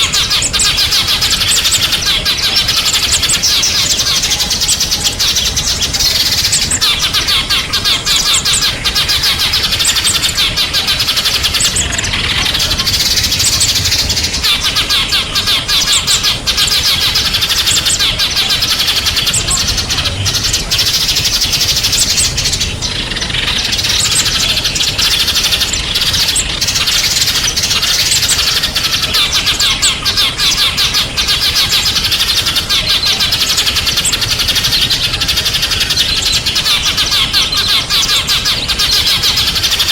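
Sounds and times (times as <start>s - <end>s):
songbirds chirping and twittering: 0.0s - 39.9s.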